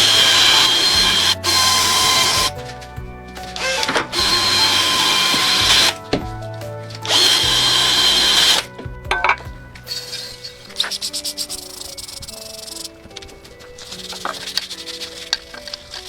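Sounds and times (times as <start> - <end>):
power tool whining: 0.0 - 2.7, 3.6 - 6.2, 7.0 - 8.7.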